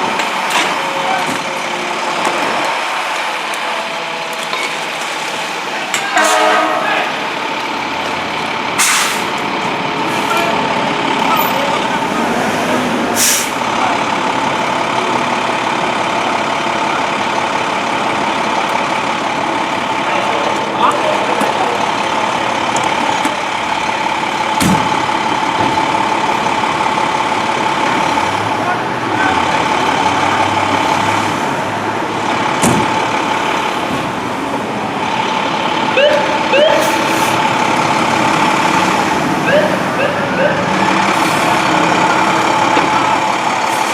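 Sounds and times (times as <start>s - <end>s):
fire truck engine idling: 0.0s - 43.9s
street noise: 0.0s - 43.9s
air brake hiss: 8.8s - 9.3s, 13.2s - 13.6s.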